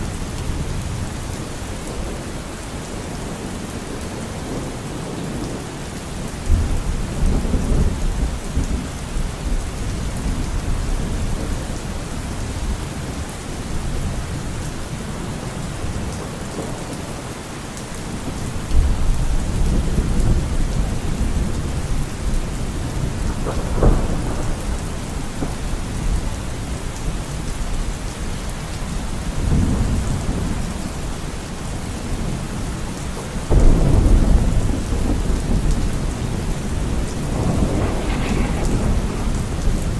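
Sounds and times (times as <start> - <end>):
heavy rain: 0.0 - 39.9
thunder rumbling: 18.1 - 26.8, 33.5 - 39.9.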